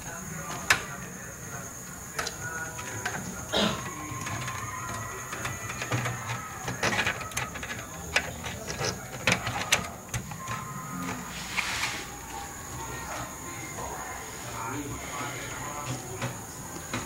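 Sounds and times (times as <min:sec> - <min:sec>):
computer parts clicking and knocking: 0:02.2 - 0:11.3.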